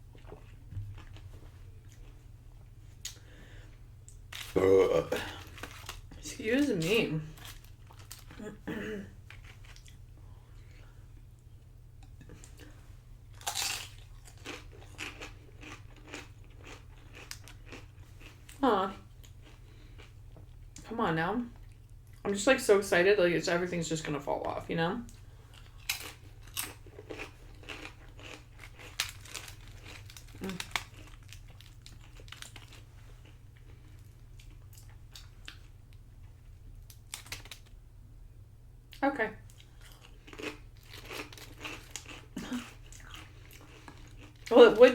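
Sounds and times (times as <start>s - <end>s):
crunchy chip biting and chewing: 13.3s - 18.4s, 25.6s - 33.4s, 39.8s - 44.5s.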